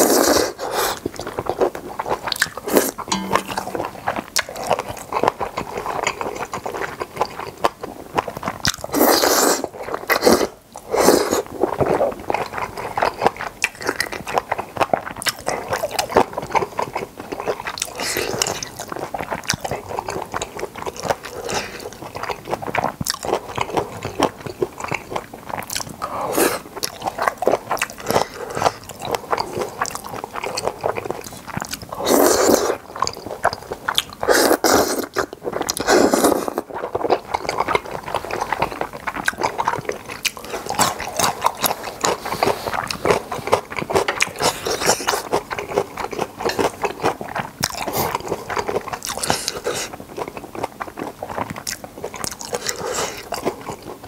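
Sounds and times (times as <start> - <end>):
close chewing: 0.0 - 3.0, 4.4 - 54.0
slurping noodles: 0.0 - 3.0, 8.8 - 12.1, 31.9 - 32.9, 34.2 - 50.0.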